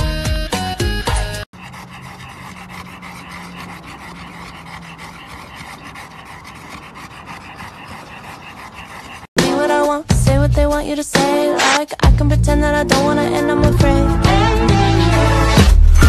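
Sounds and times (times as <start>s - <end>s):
dogs panting: 1.1s - 9.9s.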